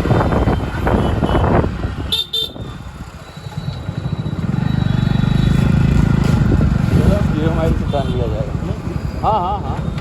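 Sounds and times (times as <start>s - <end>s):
street traffic: 0.0s - 10.0s
vehicle horn toots: 0.8s - 2.7s.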